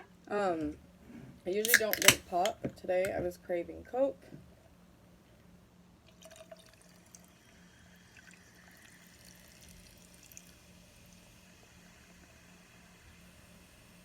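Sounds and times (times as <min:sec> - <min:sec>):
can click: 0:01.6 - 0:03.2
soda pouring and fizzing: 0:06.0 - 0:14.0.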